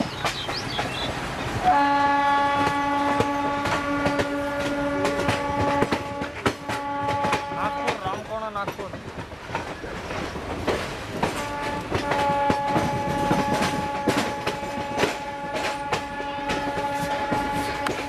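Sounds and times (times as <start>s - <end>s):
train wheels clacking over rail joints: 0.0s - 18.0s
locomotive horn blast: 1.6s - 8.2s, 11.3s - 18.0s.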